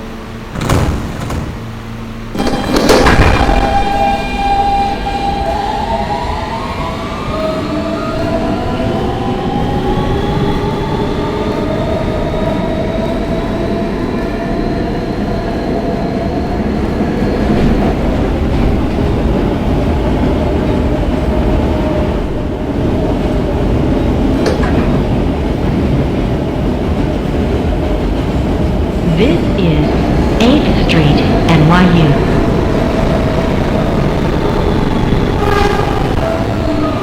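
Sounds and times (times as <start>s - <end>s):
subway motor whine: 0.0s - 37.0s
wheels rumbling on rail: 8.2s - 29.1s.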